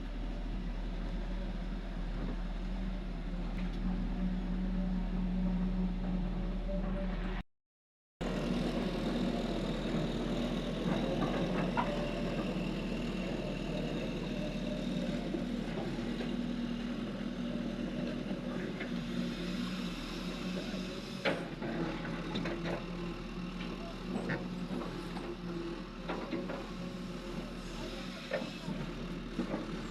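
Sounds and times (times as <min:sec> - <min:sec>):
heavy diesel engine running: 0:08.2 - 0:29.9.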